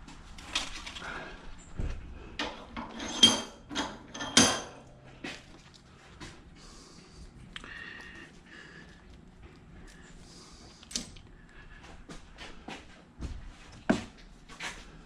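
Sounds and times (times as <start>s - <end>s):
scrap metal clanking: 2.4s - 4.9s.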